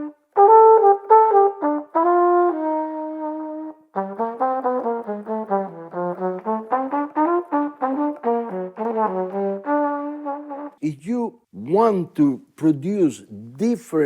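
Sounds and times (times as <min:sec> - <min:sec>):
solo trumpet: 0:00.0 - 0:10.8.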